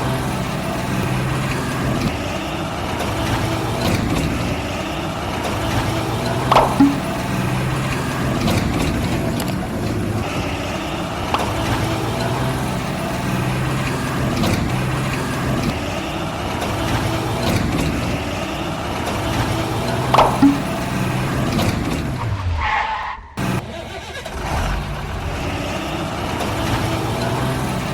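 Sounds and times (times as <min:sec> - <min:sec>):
heavy vehicle engine running: 0:00.0 - 0:22.4, 0:23.4 - 0:27.9.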